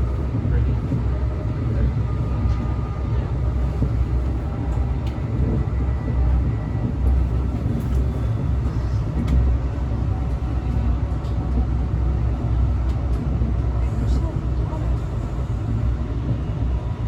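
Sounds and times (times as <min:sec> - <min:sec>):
train rumble from inside car: 0:00.0 - 0:17.0.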